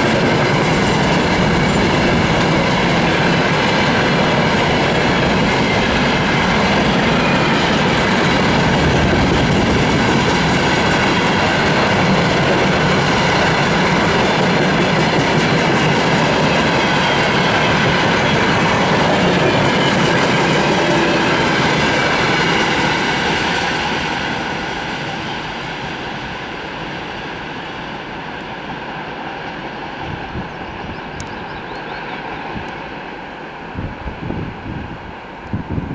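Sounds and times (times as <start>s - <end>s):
freight train wheels clattering: 0.0s - 31.4s.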